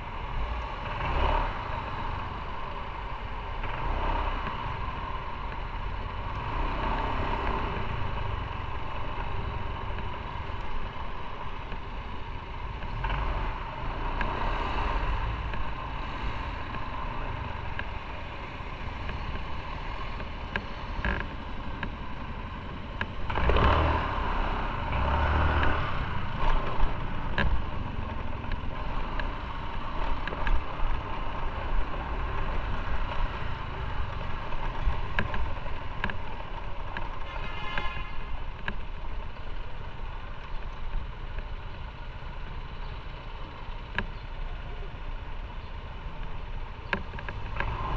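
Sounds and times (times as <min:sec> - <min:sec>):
motorcycle engine rumble: 0:00.0 - 0:47.9
wind and road noise: 0:00.0 - 0:47.9.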